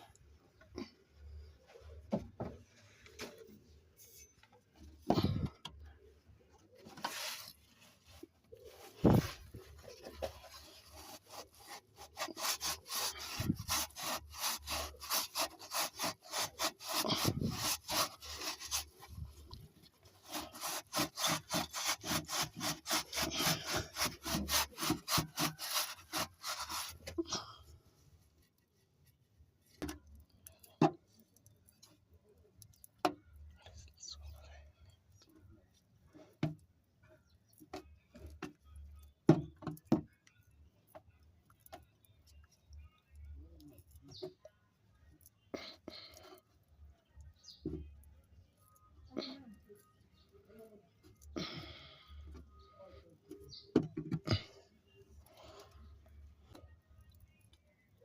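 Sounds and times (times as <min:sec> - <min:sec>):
rubbing exhaust pipe by hand: 0:06.8 - 0:19.4, 0:20.1 - 0:27.2.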